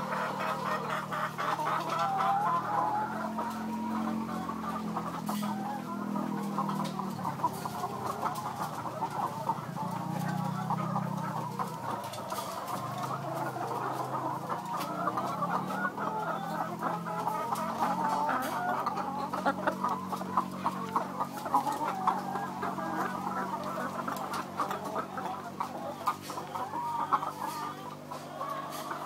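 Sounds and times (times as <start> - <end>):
chickens clucking: 0.0 - 29.0.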